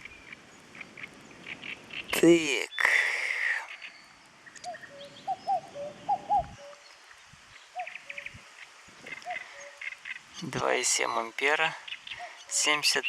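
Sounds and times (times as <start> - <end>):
faint outdoor background: 0.0 - 13.0
short arched animal calls: 7.8 - 10.4.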